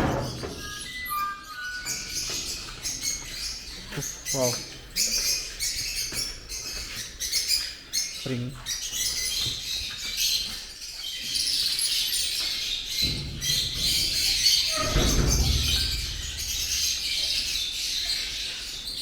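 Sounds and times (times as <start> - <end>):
low rumble: 13.1 - 17.8.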